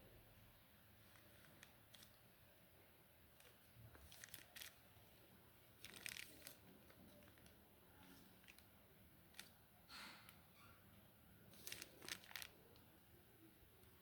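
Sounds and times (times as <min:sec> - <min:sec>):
packaging rustling: 0:01.1 - 0:02.2, 0:03.4 - 0:05.0, 0:05.8 - 0:08.7, 0:11.5 - 0:12.8.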